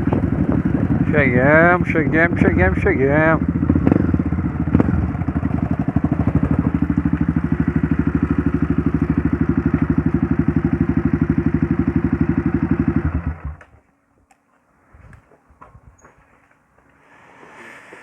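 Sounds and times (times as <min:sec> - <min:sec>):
motorcycle engine idling: 0:00.0 - 0:13.8.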